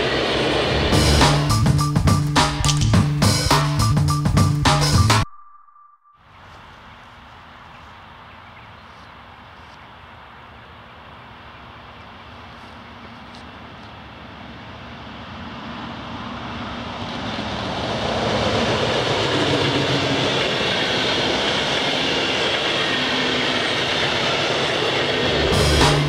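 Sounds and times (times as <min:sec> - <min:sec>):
diesel locomotive engine: 0:00.0 - 0:04.9, 0:11.0 - 0:26.0
train wheels on rails: 0:13.2 - 0:26.0.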